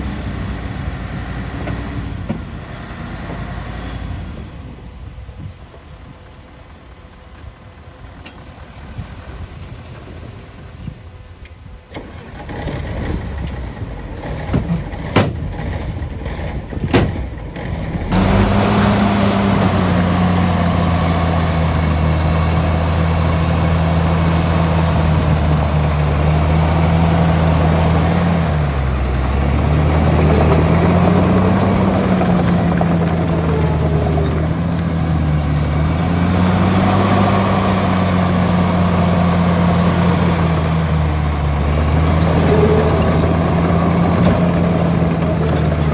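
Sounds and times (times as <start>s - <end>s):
heavy diesel engine running: 0.0s - 45.9s
sharp knocks: 14.5s - 15.9s.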